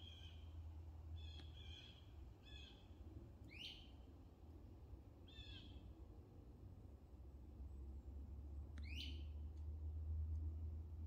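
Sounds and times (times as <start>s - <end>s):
faint wild bird calls: 0.0s - 0.6s, 1.2s - 4.0s, 5.2s - 5.9s.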